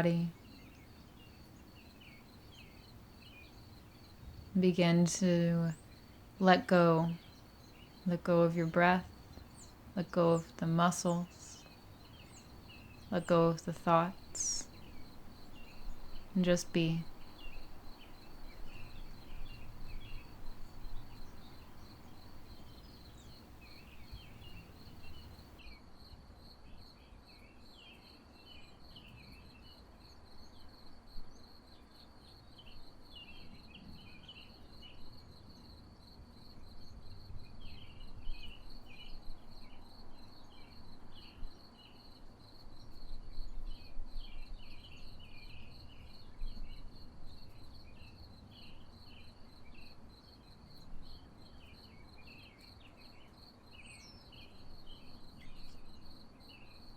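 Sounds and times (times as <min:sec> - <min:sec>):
small birds twittering: 0:00.3 - 0:25.6.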